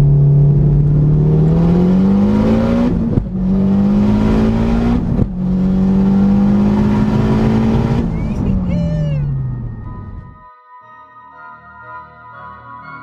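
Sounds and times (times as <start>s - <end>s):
car engine accelerating hard: 0.0s - 10.4s.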